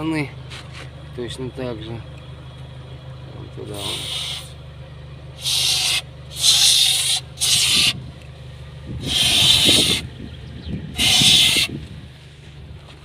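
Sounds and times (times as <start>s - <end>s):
low steady hum: 0.0s - 11.0s
aerosol spray hissing: 5.4s - 7.9s.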